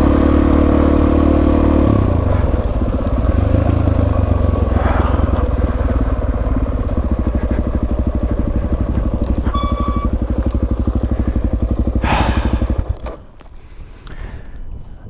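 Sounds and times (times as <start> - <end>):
motorcycle engine putting: 0.0 - 15.0
short electronic beep: 9.4 - 10.3.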